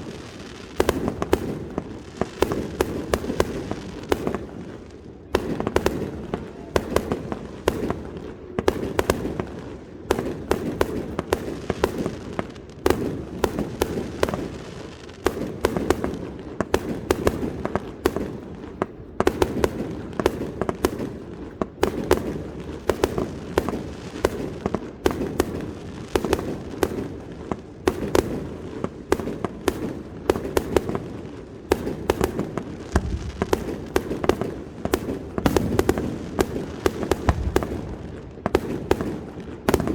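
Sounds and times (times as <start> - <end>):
crackling rumble: 32.8 - 34.3, 37.1 - 38.2.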